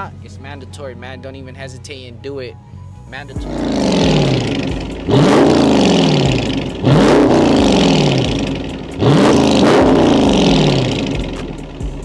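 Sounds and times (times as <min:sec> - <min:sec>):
car engine revving: 0:02.9 - 0:12.0.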